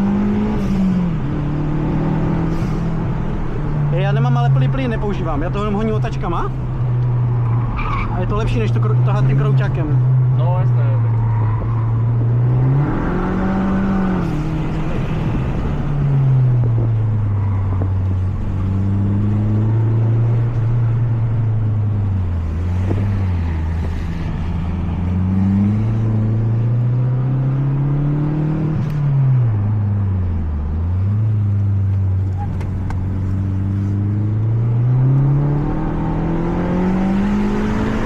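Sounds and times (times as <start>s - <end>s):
car engine revving hard: 11.9s - 16.2s, 22.5s - 29.0s, 33.0s - 38.0s.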